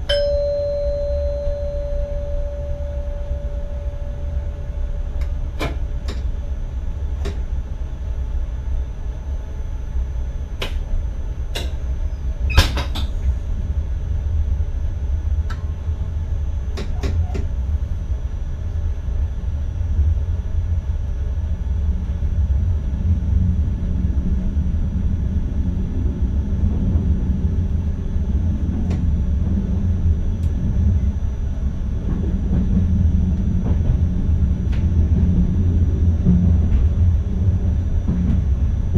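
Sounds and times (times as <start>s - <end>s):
faint high whine: 0.0s - 5.6s
train cab rumble: 0.0s - 38.9s.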